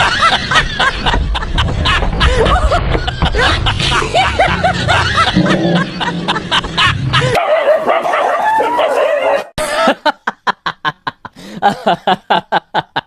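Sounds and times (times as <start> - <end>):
dog yapping: 7.4 - 9.5.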